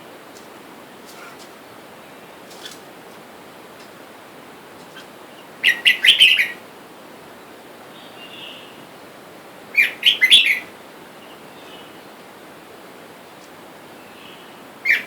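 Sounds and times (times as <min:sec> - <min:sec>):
bird chirping: 0:04.9 - 0:06.6.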